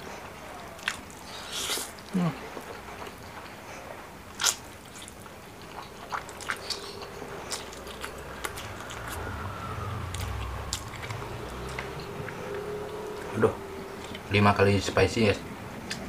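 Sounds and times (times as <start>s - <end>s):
wet mouth chewing noodles: 0.8s - 3.6s, 4.3s - 9.2s
low rumble: 5.5s - 16.0s.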